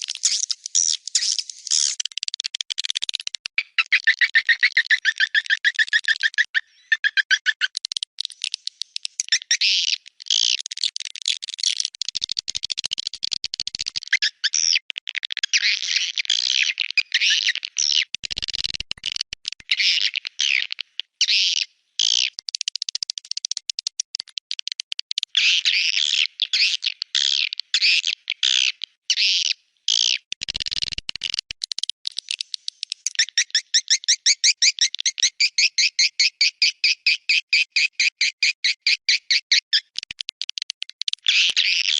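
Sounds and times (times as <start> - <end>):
swiftlet chirping and twittering: 0.0 - 10.0, 32.1 - 40.0.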